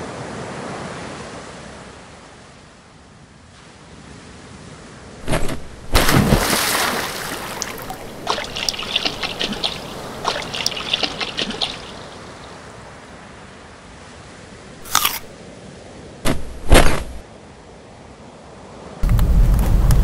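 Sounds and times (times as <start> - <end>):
loud water splash: 5.2 - 12.9
water trickling and dripping: 6.4 - 12.9.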